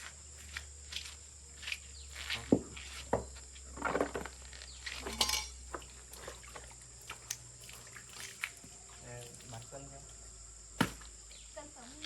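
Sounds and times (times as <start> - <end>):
knife knocking and clinking: 5.0 - 5.5.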